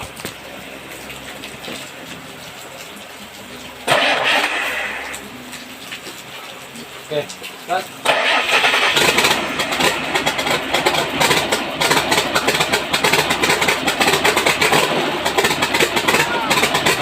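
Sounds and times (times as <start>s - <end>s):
small engine running: 8.0s - 17.0s.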